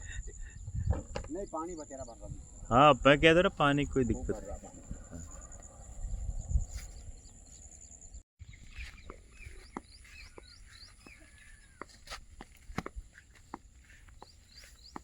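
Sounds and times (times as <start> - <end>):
insect drone: 0.0 - 8.2
birds chirping: 0.0 - 15.0.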